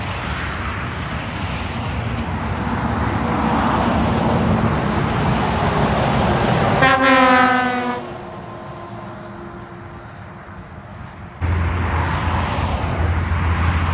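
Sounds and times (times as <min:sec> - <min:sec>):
heavy truck passing: 0:00.0 - 0:13.9
truck horn blast: 0:06.8 - 0:08.2.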